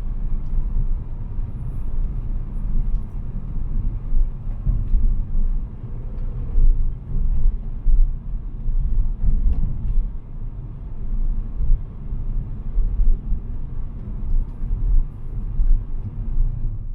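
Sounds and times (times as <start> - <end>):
car engine and road noise: 0.0 - 16.9.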